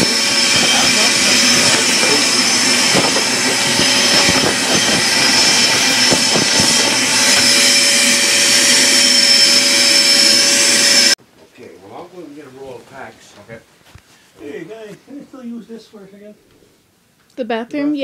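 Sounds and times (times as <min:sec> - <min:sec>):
motor running with high whine: 0:00.0 - 0:11.2
rattling knocks: 0:02.8 - 0:08.2.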